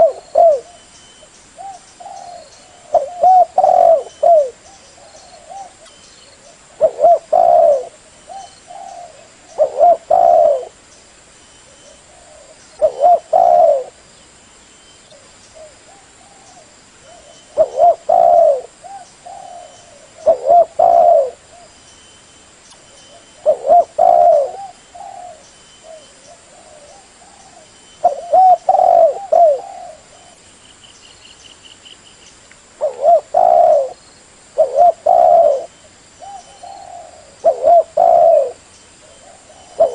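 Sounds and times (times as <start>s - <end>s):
dove cooing: 0.0s - 10.8s, 11.7s - 14.0s, 15.1s - 21.7s, 23.0s - 30.4s, 32.8s - 34.0s, 34.6s - 39.9s.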